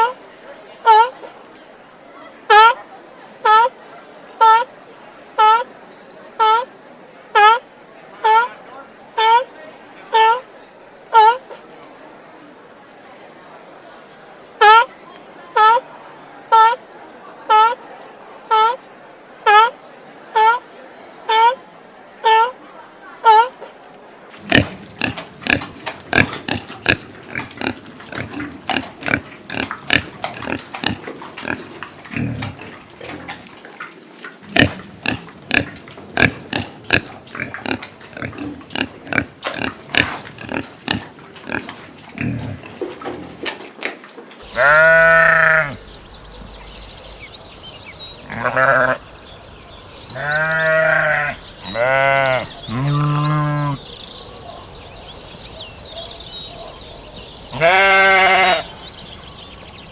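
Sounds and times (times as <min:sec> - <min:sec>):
pigs grunting: 0:24.3 - 0:43.8, 0:50.1 - 0:53.8
sheep bleating: 0:44.4 - 0:45.8, 0:48.3 - 0:49.0, 0:50.1 - 0:53.8, 0:57.5 - 0:58.7.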